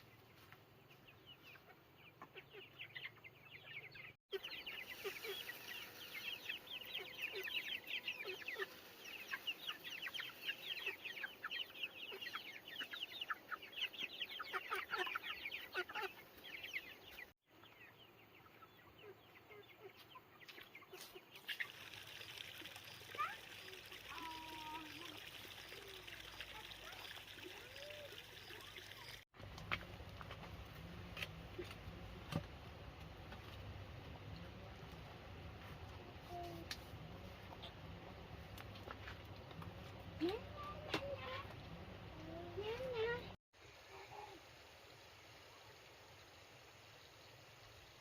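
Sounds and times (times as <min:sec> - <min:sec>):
chickens chirping and clucking: 0:00.0 - 0:29.2, 0:37.2 - 0:38.0.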